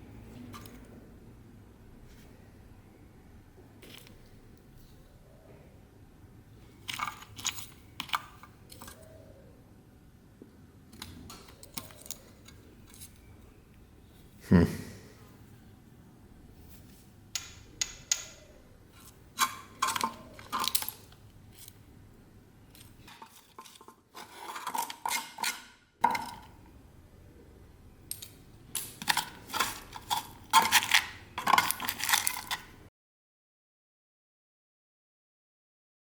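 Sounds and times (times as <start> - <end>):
small metal objects clinking: 19.4 - 21.8, 28.1 - 32.7.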